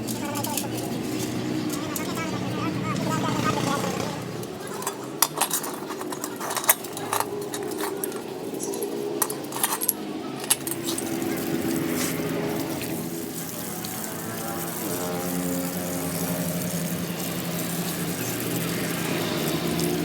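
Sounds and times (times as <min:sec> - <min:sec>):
metal parts clinking: 0:00.0 - 0:02.1, 0:04.4 - 0:12.1.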